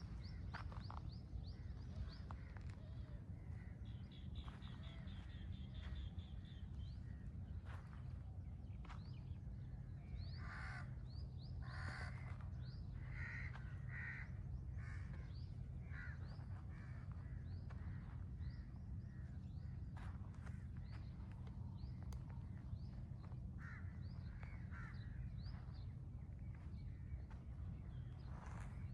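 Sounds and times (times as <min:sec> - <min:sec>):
crows cawing: 0:10.2 - 0:18.2, 0:23.6 - 0:25.9.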